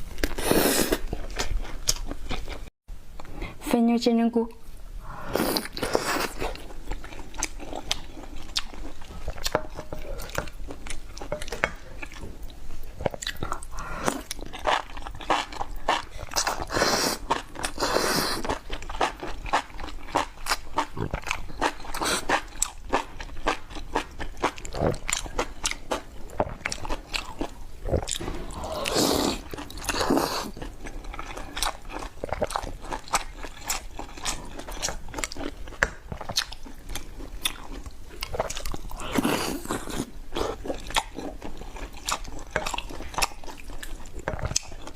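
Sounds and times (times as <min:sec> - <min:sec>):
person chewing crunchy food: 0:00.0 - 0:02.7, 0:05.1 - 0:44.9.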